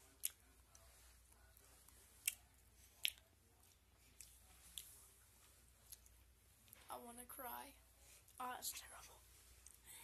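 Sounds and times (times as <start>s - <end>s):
person chewing: 0.1s - 0.9s, 1.5s - 5.0s, 5.8s - 6.8s.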